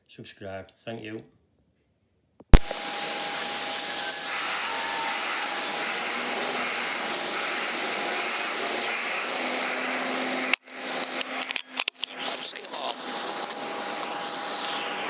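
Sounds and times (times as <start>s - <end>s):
sharp click: 2.5s - 2.8s
steady mechanical drone: 2.6s - 15.0s.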